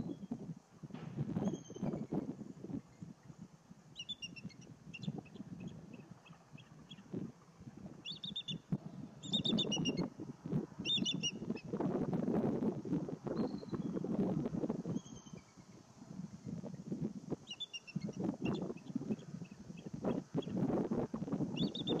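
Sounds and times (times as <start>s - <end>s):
low rustling noise: 0.0s - 22.0s
songbird chirping: 2.9s - 7.2s, 8.0s - 10.1s, 10.8s - 11.6s, 17.4s - 20.6s, 21.5s - 22.0s.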